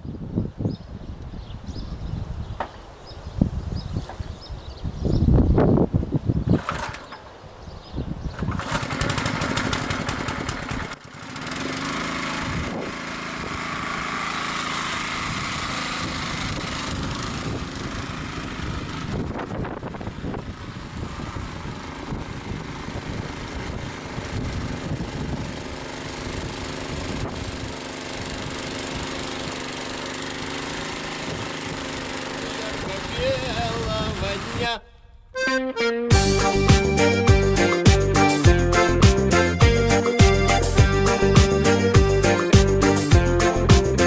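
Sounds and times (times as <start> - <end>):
wind noise: 0.0 - 11.0, 12.4 - 13.8, 15.2 - 29.2, 32.8 - 35.4
small petrol engine running: 6.6 - 7.2, 8.3 - 33.8.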